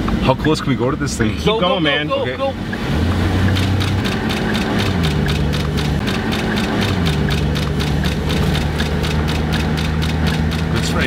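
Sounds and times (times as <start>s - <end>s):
car engine running: 0.0s - 11.0s
rapid even pulsing: 3.1s - 11.0s.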